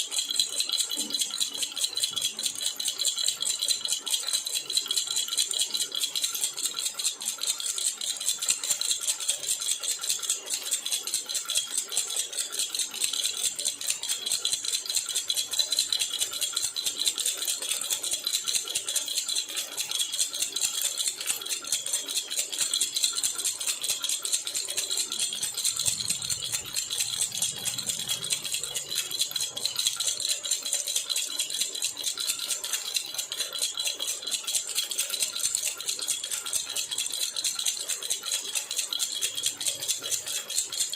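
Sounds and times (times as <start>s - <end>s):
baby rattle shaken: 13.7s - 33.7s.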